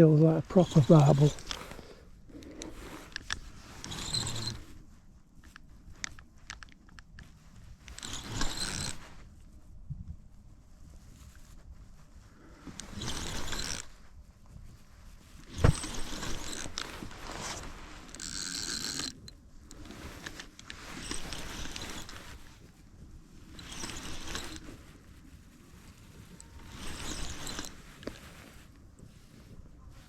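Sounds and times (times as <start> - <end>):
fishing reel winding: 0.6 - 4.8, 7.9 - 9.0, 12.8 - 13.9, 15.6 - 22.5, 23.5 - 24.8, 26.4 - 28.1.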